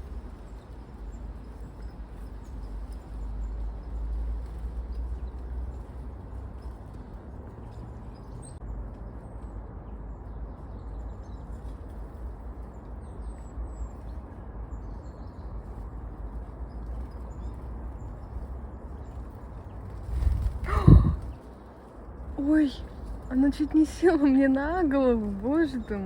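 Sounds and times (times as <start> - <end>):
low outdoor rumble: 0.0 - 26.0
birds chirping: 14.7 - 26.0.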